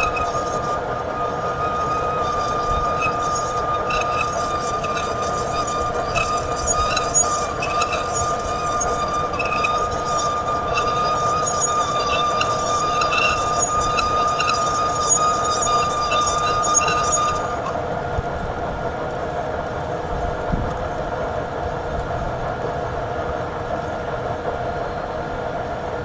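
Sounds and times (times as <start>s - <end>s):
metal lathe whining: 0.0s - 26.0s
small irregular ticks: 2.3s - 17.8s.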